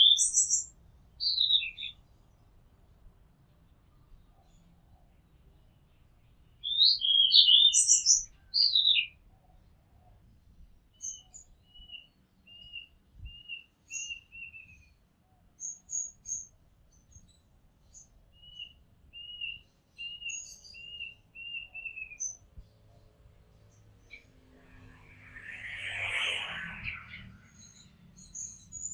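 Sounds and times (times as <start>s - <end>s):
bird singing whistled phrases: 0.0s - 2.0s, 6.6s - 9.1s, 18.4s - 22.4s.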